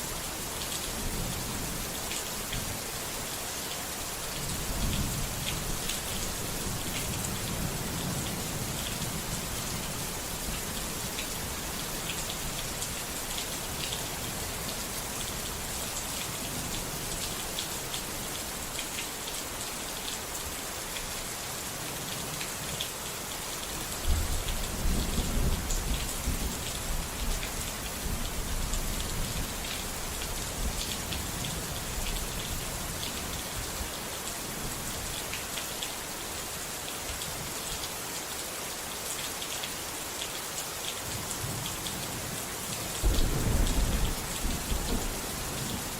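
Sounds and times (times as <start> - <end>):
steady rain: 0.0 - 45.9
thunder rumbling: 43.0 - 45.4.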